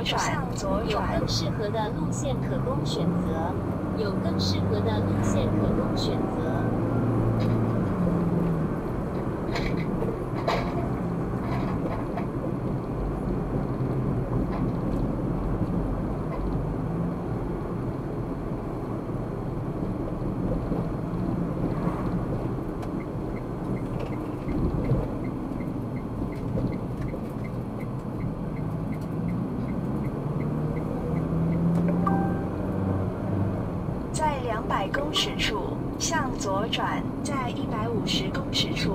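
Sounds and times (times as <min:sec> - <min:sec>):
car engine and road noise: 0:00.0 - 0:38.9
turn signal ticking: 0:22.7 - 0:32.5.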